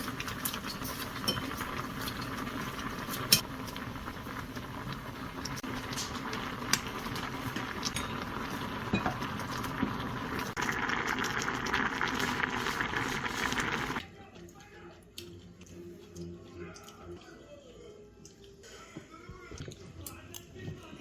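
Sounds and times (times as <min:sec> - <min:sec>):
utensils clinking: 0:00.0 - 0:03.5, 0:07.8 - 0:09.7
pot bubbling hiss: 0:00.0 - 0:14.0.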